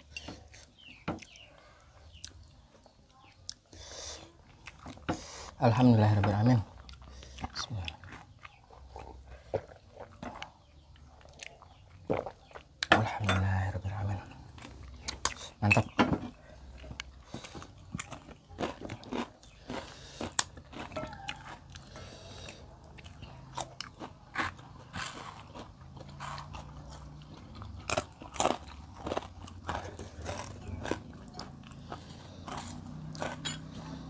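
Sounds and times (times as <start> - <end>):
crunching crackers: 6.1 - 12.9, 16.6 - 34.0.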